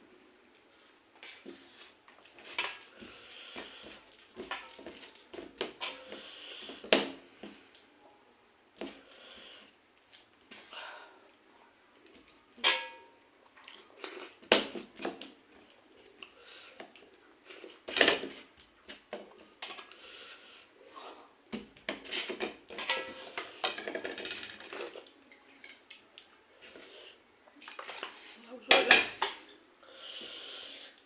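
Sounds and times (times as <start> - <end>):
dishes and utensils clinking: 4.4 - 6.4, 12.6 - 13.2, 22.0 - 25.9.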